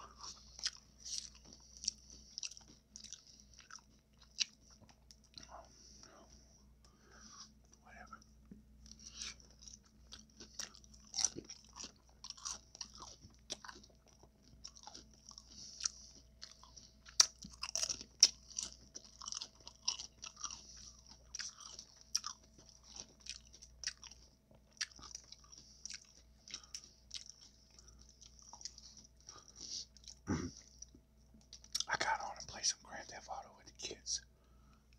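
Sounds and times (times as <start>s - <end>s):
chewing with wet mouth sounds: 0.0s - 34.9s
food crunches: 9.0s - 30.2s.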